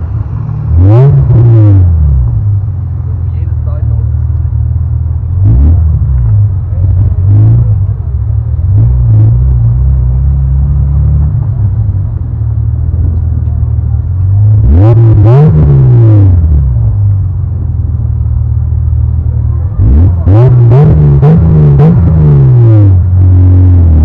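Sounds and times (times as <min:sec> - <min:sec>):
engine revving: 0:00.0 - 0:02.6, 0:05.3 - 0:12.2, 0:14.2 - 0:17.3, 0:19.2 - 0:24.0
car engine idling: 0:00.0 - 0:24.0.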